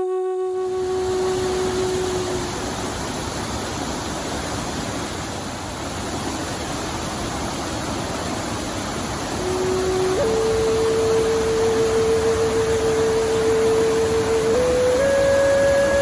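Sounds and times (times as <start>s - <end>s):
held flute-like note: 0.0s - 2.8s, 9.4s - 16.0s
waterfall rushing: 0.1s - 16.0s.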